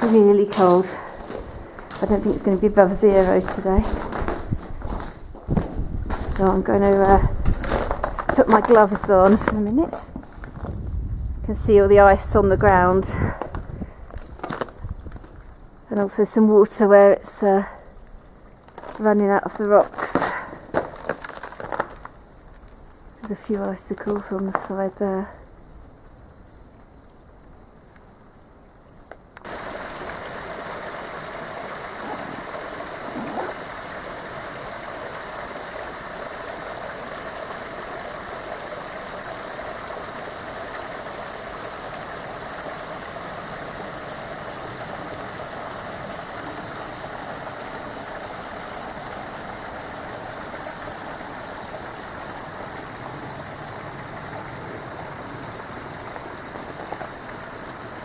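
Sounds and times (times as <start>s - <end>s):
water rushing down rock: 0.0s - 10.7s, 29.4s - 58.0s.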